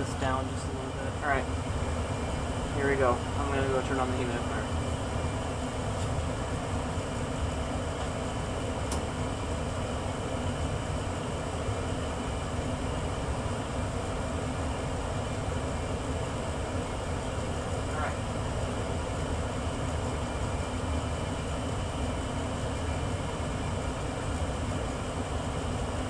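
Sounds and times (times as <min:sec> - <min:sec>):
gas furnace rumbling: 0:00.0 - 0:26.0.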